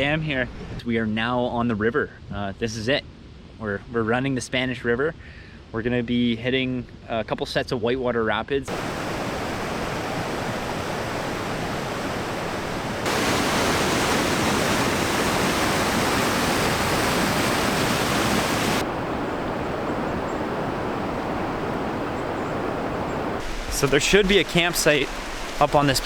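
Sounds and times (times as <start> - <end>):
river rapids rushing: 8.7 - 26.0.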